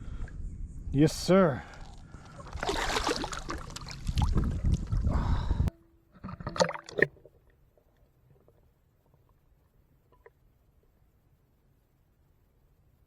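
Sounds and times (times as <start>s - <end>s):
water splashing against boat: 2.4s - 5.0s.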